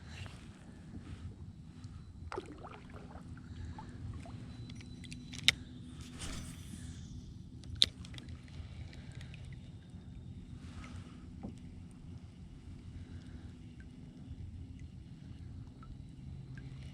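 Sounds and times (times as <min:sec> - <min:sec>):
water and hull rumble: 0:00.7 - 0:04.8.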